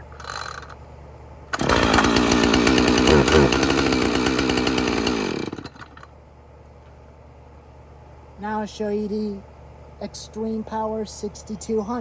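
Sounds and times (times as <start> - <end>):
chainsaw running and revving: 1.6 - 6.0.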